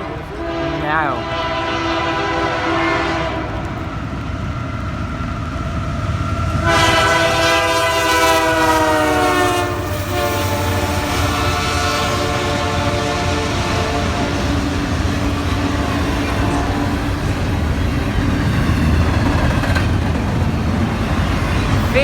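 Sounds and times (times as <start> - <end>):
locomotive horn blasts: 0.0 - 3.8, 6.6 - 14.8, 15.5 - 17.0
train rumbling by: 0.0 - 22.0.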